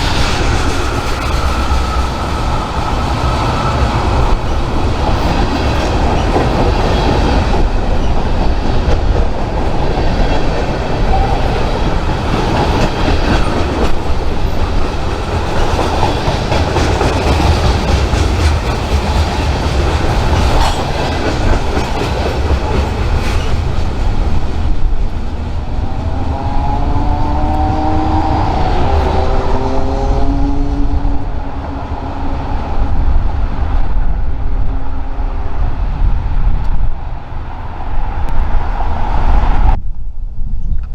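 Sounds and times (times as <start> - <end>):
train wheels clattering: 0.0 - 24.8.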